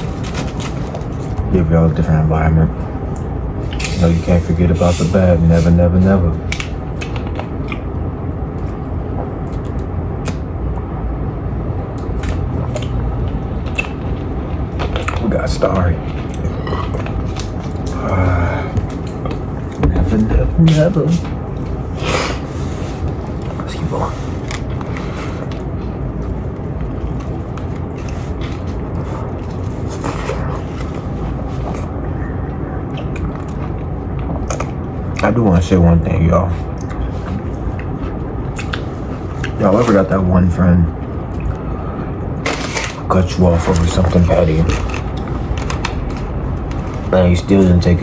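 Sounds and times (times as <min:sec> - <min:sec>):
low rumble: 0:00.0 - 0:39.6, 0:40.5 - 0:48.0
person eating: 0:03.1 - 0:05.8, 0:16.0 - 0:35.2, 0:36.6 - 0:39.9
eating clicks and smacks: 0:06.4 - 0:07.9, 0:08.5 - 0:10.5, 0:11.9 - 0:14.2, 0:14.8 - 0:18.0, 0:32.9 - 0:35.3, 0:36.7 - 0:37.1, 0:37.7 - 0:39.6.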